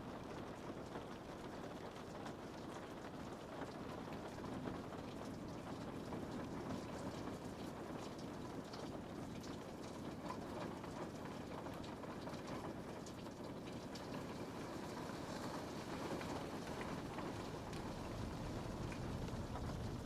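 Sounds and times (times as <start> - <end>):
rain pattering on a window: 0.0 - 20.0.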